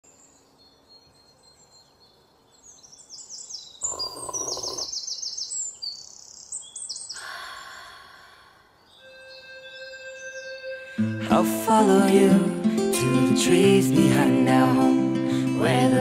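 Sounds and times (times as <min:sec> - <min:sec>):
background hiss: 0:00.1 - 0:15.8
birds calling high falling notes: 0:03.8 - 0:11.3.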